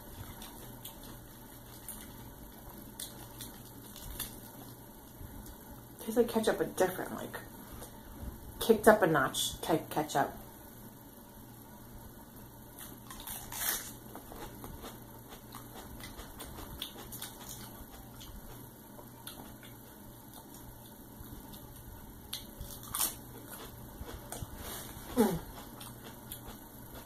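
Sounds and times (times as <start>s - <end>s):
crunchy chewing of lettuce: 0.0s - 5.6s, 12.8s - 27.0s.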